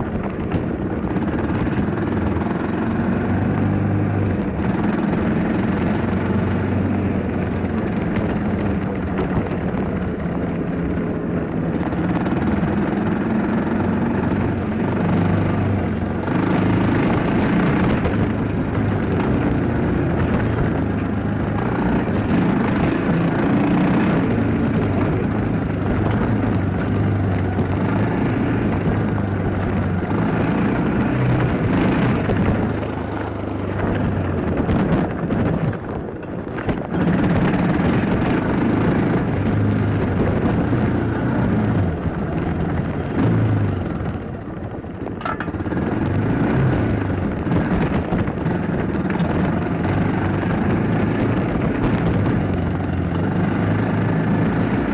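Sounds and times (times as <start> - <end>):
dirt bike engine revving: 11.7 - 35.5.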